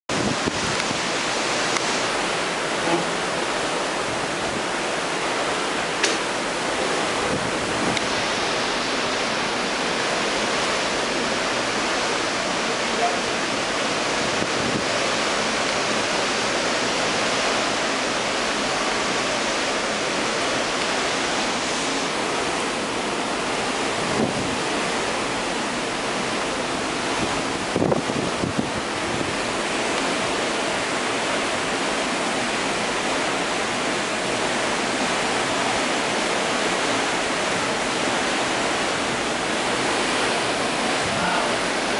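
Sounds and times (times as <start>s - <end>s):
wind buffeting microphone: 0.1s - 1.7s, 6.8s - 8.9s, 14.0s - 15.3s, 23.8s - 25.1s, 26.9s - 29.9s
wind and sea rushing: 0.1s - 41.9s.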